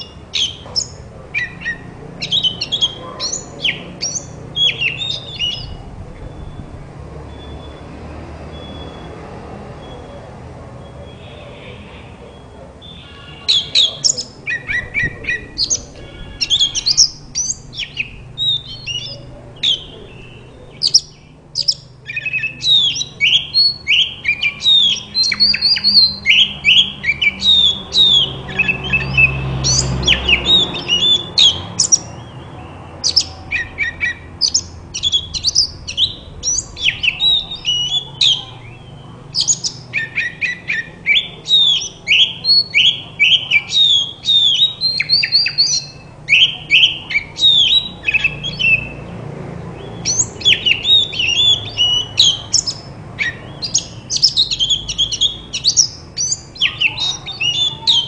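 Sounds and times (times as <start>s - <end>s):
bird singing whistled notes: 0.0s - 7.9s, 8.5s - 9.1s, 12.3s - 49.0s, 49.9s - 58.0s.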